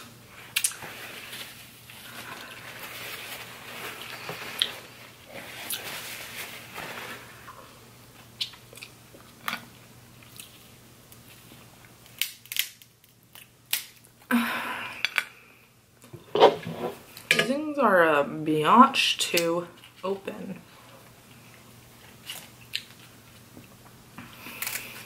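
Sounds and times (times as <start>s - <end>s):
crab shells cracking: 11.9s - 14.2s.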